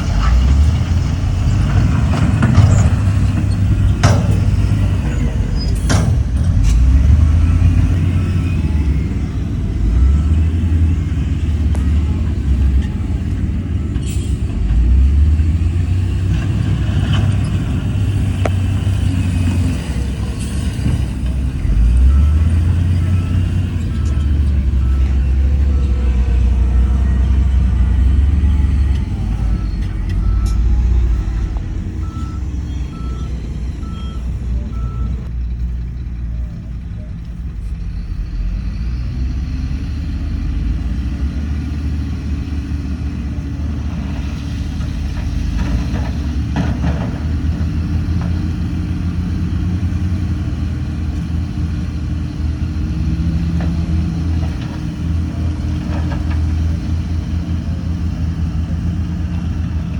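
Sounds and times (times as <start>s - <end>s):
heavy diesel machinery running: 0.0s - 59.9s
reversing alarm beeping: 6.9s - 13.0s, 21.6s - 35.3s.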